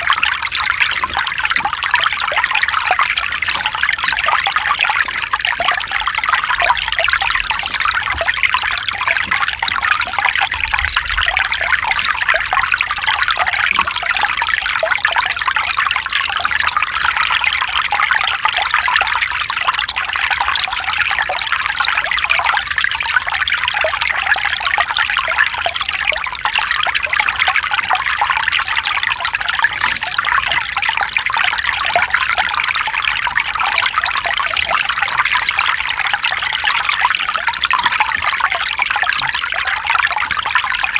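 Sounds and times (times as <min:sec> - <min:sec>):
stream flowing over rocks: 0:00.0 - 0:18.5.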